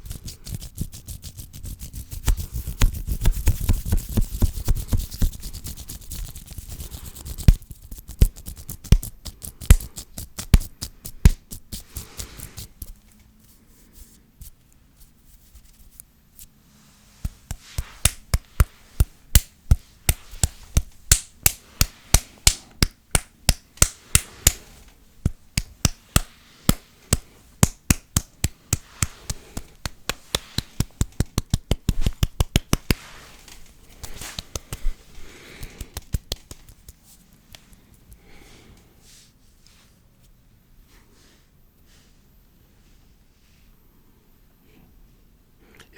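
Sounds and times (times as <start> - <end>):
hands rubbing: 0.0 - 13.0, 17.0 - 38.4
crisp hand clicks: 35.6 - 37.6.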